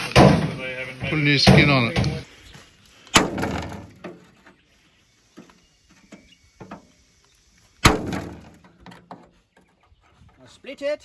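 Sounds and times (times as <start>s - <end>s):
sharp ringing metal knocks: 1.4s - 2.2s.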